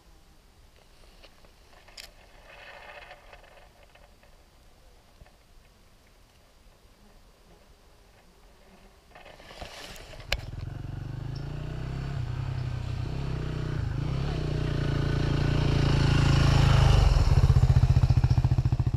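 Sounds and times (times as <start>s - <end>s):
dirt bike engine running: 10.3s - 18.9s.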